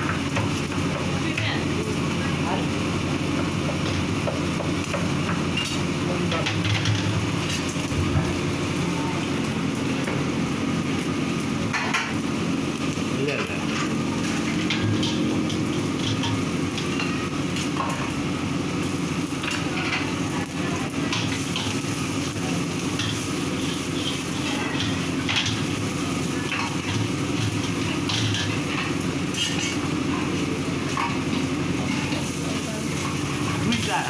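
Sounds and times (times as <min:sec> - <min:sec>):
food sizzling in hot oil: 0:00.0 - 0:34.0
gas burner noise: 0:00.0 - 0:34.0
metal utensils scraping woks: 0:21.0 - 0:34.0.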